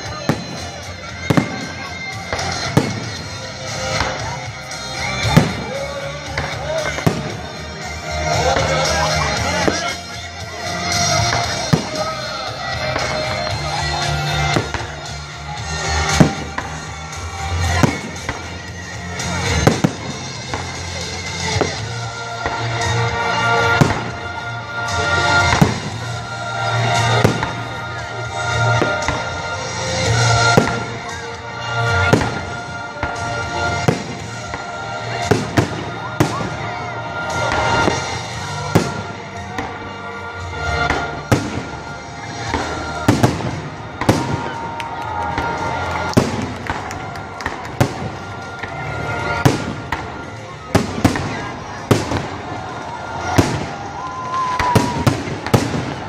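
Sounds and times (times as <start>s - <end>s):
background music: 0.0s - 56.0s
fireworks bursting with bangs: 0.0s - 56.0s.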